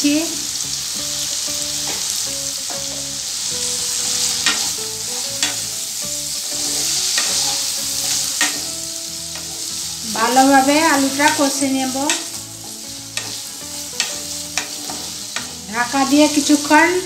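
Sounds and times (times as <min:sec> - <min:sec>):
potatoes sizzling in hot oil: 0:00.0 - 0:17.0
spatula knocking on pan: 0:04.3 - 0:05.7, 0:06.6 - 0:09.6, 0:10.8 - 0:15.6.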